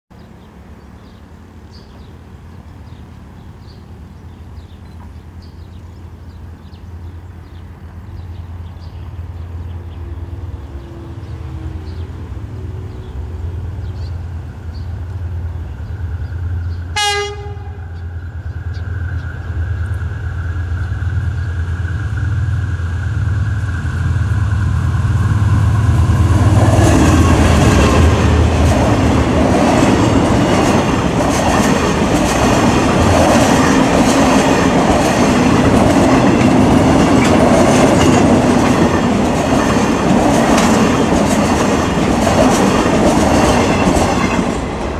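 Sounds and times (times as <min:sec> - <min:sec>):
locomotive engine droning: 0:00.2 - 0:44.9
train horn blast: 0:16.9 - 0:18.1
wheels clattering on rails: 0:23.5 - 0:44.9.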